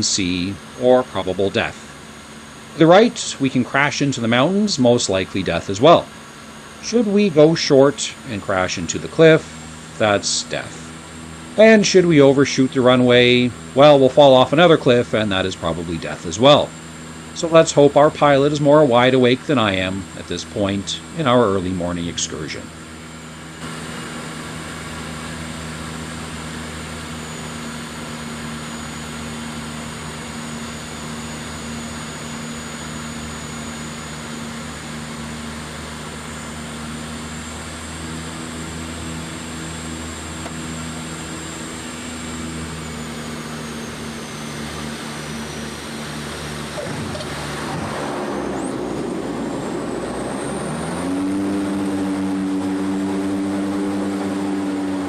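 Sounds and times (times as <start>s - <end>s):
high turbine whine: 0.0s - 55.0s
turboprop engines droning: 0.0s - 55.0s
rush of noise: 43.7s - 55.0s.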